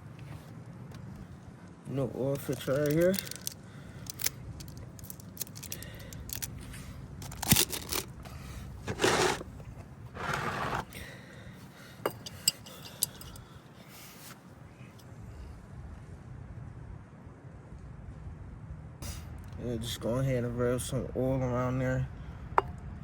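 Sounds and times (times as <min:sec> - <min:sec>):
clicks and light knocks of parts: 0:02.4 - 0:08.4, 0:12.0 - 0:13.5
loud scraping or rustling bursts: 0:08.8 - 0:11.0.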